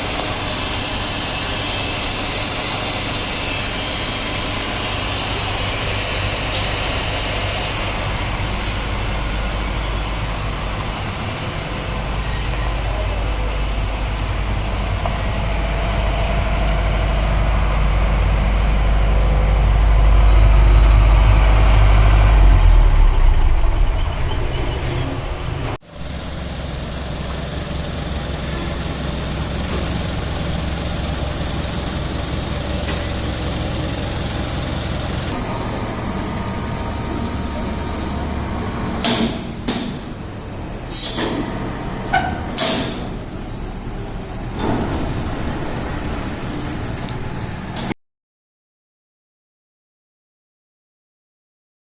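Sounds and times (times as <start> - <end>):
diesel generator rumbling: 0.0 - 47.9.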